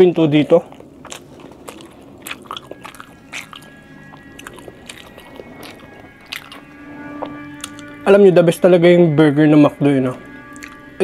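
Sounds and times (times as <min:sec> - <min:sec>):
faint background music: 0:00.0 - 0:11.0
chewing close-up: 0:00.5 - 0:07.8, 0:10.5 - 0:10.8
sharp mouth clicks: 0:00.7 - 0:03.7.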